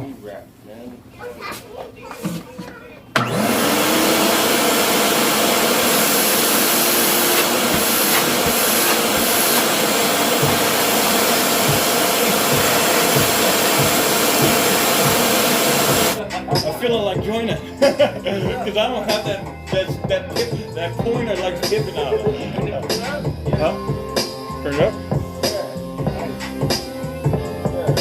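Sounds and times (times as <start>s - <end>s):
shop vac motor running: 3.1s - 16.2s.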